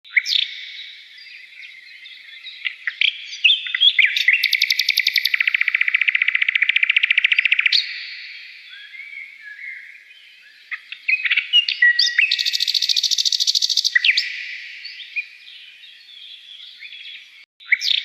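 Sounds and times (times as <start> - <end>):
songbirds chirping: 0.1 - 18.0
fast bird trill: 2.7 - 8.3, 10.7 - 15.3.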